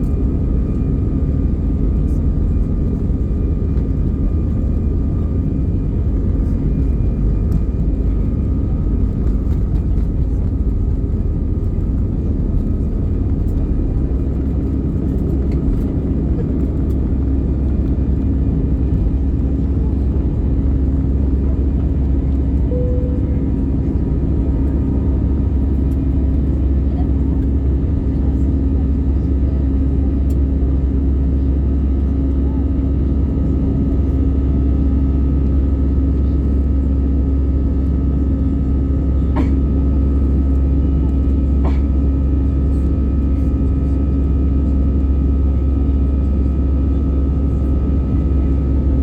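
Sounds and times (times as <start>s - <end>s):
airplane cabin engine rumble: 0.0s - 49.0s
constant hum: 0.0s - 49.0s.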